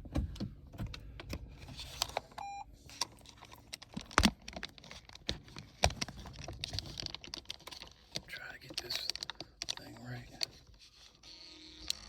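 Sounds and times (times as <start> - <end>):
short electronic beep: 2.4 - 2.7
clicks and knocks of handling: 2.9 - 10.6.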